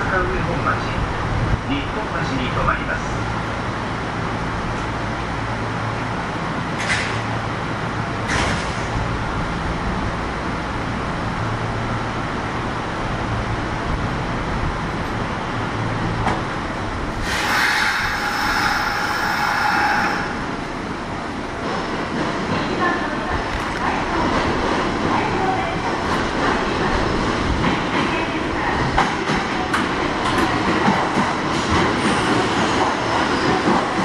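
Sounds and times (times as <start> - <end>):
electric train humming: 3.2 - 34.0
loud hiss: 17.2 - 20.5.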